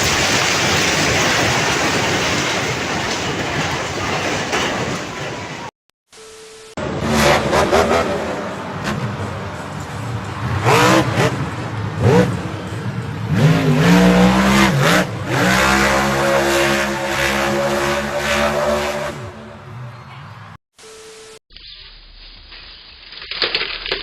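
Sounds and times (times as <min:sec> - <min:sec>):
vehicle engine revving: 0:06.8 - 0:19.6.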